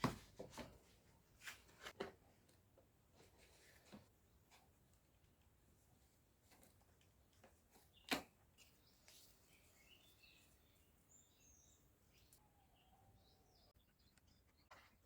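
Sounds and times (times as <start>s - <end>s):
faint high chirps: 7.9s - 15.0s.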